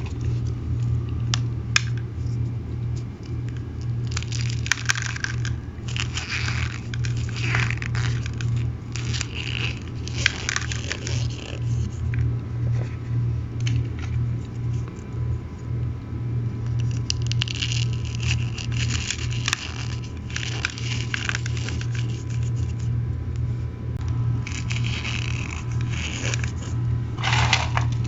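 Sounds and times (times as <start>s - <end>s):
cornstarch crunching between fingers: 0.0s - 12.4s, 16.7s - 22.9s, 24.4s - 28.0s
steady low hum: 0.0s - 28.0s.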